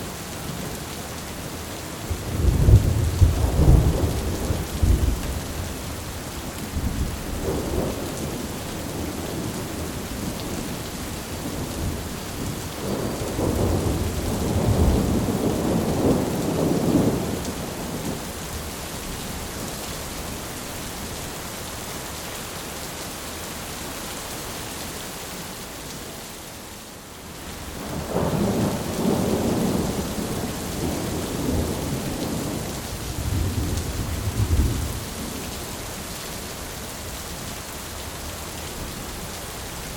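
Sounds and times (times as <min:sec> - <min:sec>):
heavy rain hissing: 0:00.0 - 0:24.2, 0:24.8 - 0:39.9
thunder rumbling: 0:02.2 - 0:05.7, 0:06.8 - 0:18.2, 0:27.8 - 0:35.4.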